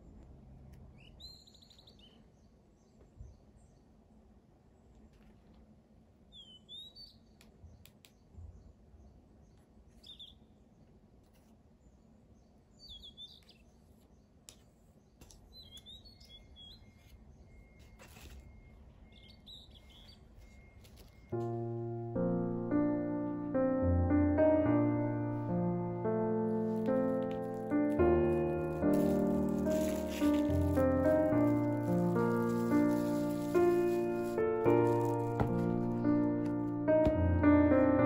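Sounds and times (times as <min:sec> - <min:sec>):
small birds twittering: 0:00.6 - 0:04.1, 0:06.3 - 0:11.0, 0:11.7 - 0:21.5.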